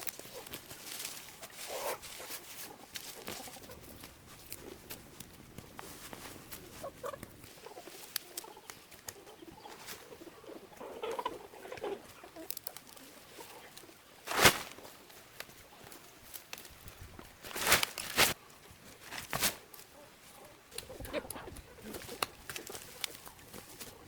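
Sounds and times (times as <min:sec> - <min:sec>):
chickens clucking: 0:06.6 - 0:15.9, 0:19.9 - 0:24.0.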